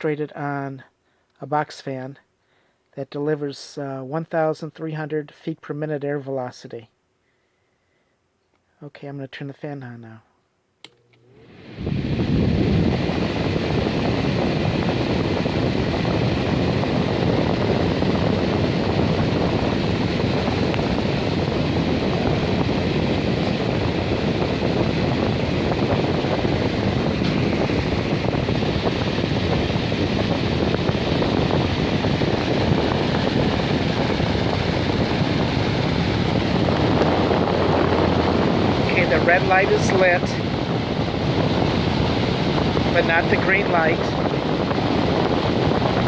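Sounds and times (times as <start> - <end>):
box fan rushing air: 11.0 - 46.0
wind noise on microphone: 11.4 - 46.0.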